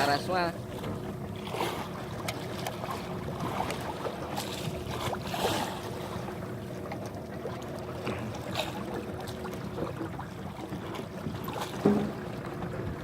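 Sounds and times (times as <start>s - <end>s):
boat engine rumbling: 0.0s - 13.0s
water noise: 0.0s - 13.0s
wind: 0.0s - 13.0s
light knocks: 11.8s - 12.3s.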